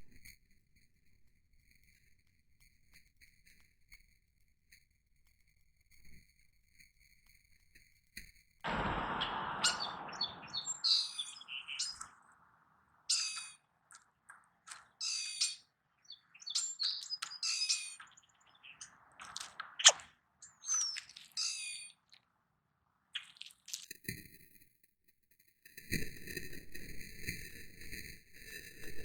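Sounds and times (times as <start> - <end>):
rush of noise: 8.7 - 12.6
songbirds chirping: 8.7 - 22.2.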